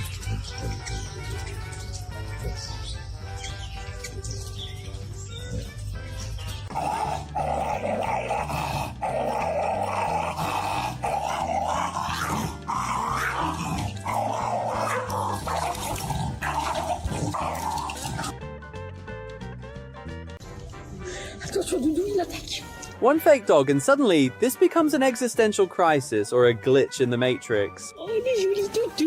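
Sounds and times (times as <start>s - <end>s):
background music: 0.0s - 29.0s
dog making rough vocal sounds: 6.6s - 18.4s.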